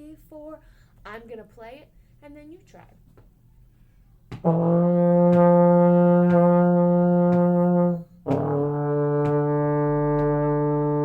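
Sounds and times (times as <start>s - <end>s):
breath: 0.6s - 1.0s
trombone playing held notes: 4.4s - 11.0s.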